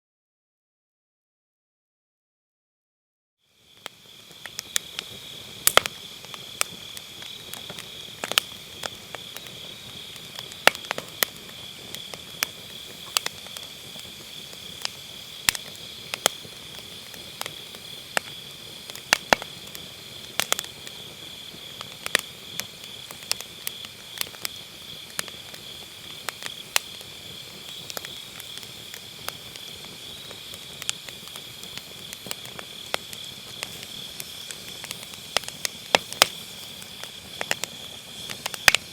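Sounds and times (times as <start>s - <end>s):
chorus of grass insects: 3.5s - 38.9s
firewood popping and crackling: 3.7s - 38.9s.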